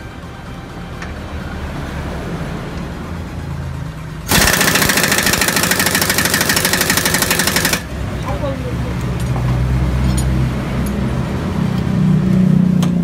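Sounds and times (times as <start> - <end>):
impact wrench hammering rattle: 4.3 - 7.9.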